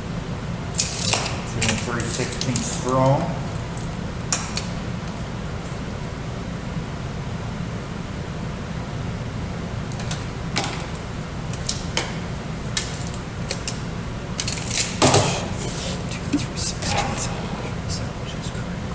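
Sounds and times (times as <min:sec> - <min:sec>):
low room hum: 0:00.0 - 0:18.9
plexiglass pieces clicking: 0:00.8 - 0:05.8, 0:09.9 - 0:17.2.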